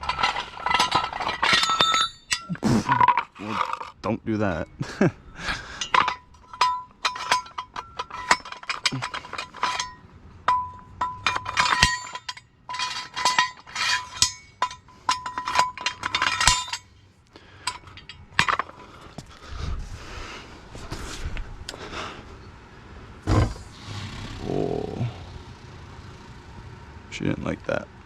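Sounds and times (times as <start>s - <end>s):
thin metallic ring: 0.0s - 2.6s, 5.8s - 17.0s.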